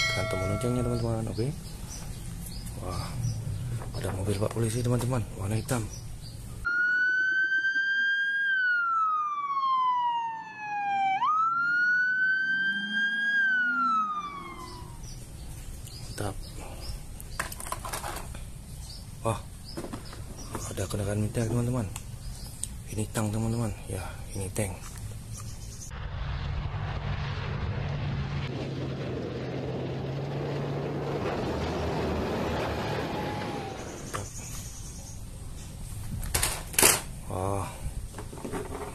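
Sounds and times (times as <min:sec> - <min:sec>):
police siren wailing: 0:06.7 - 0:15.1, 0:32.5 - 0:34.1
heavy vehicle engine running: 0:27.2 - 0:34.1.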